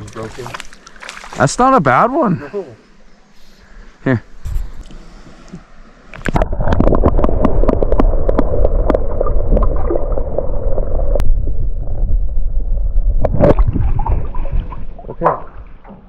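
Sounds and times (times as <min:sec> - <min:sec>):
water splashes: 0:00.0 - 0:02.3, 0:13.2 - 0:16.0
water gurgling and sloshing: 0:00.0 - 0:03.2, 0:04.8 - 0:16.0.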